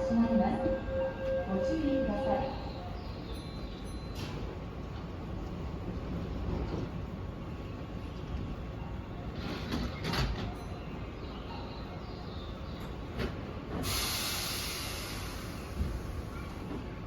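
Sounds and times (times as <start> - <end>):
electric train rumbling: 0.0 - 17.0
compressed air hiss: 13.8 - 16.3.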